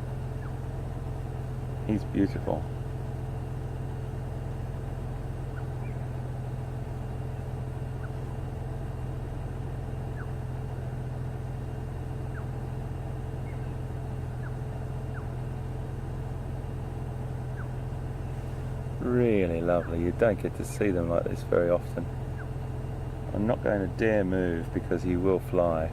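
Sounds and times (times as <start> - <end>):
vehicle engine idling: 0.0 - 25.9
faint short bird chirps: 13.4 - 13.8.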